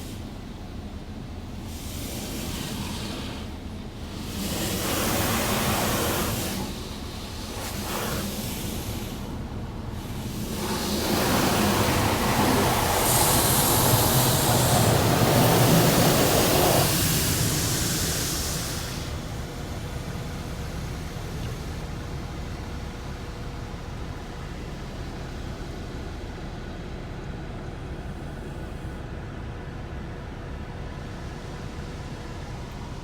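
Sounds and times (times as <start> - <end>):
water spray hissing on car: 0.0 - 26.3.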